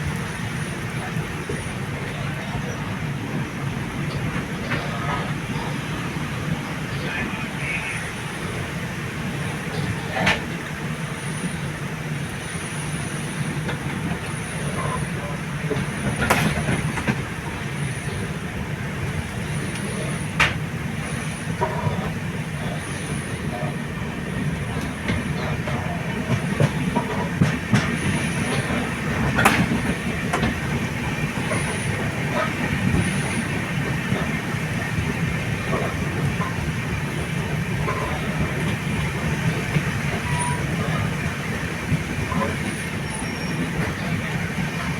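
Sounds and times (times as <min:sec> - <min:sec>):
train wheels rumbling on track: 0:00.0 - 0:44.9
wheels clacking over rail joints: 0:13.6 - 0:44.9.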